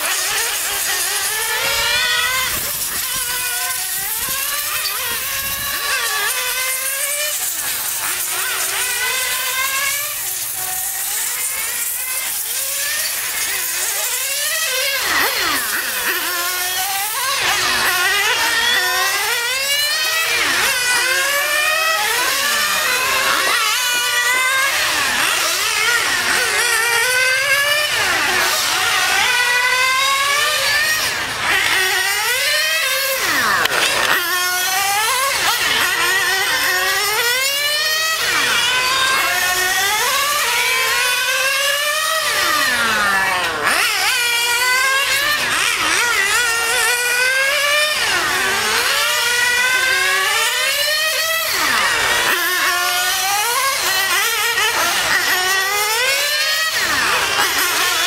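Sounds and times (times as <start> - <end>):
small engine revving: 0.0 - 58.0.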